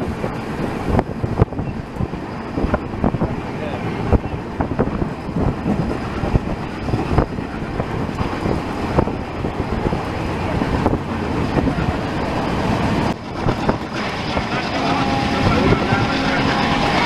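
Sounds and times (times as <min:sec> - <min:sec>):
train wheels rumbling on track: 0:00.0 - 0:17.0
wind buffeting microphone: 0:00.0 - 0:17.0.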